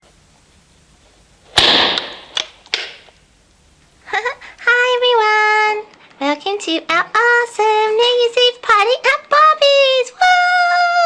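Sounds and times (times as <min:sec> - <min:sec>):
sharp bang with hissing tail: 0:01.4 - 0:03.1.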